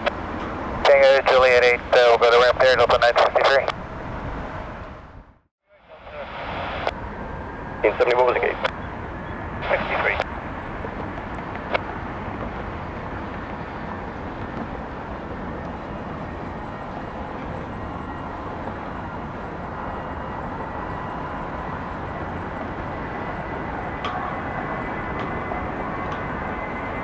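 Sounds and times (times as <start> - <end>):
jet engines running: 0.0 - 27.0.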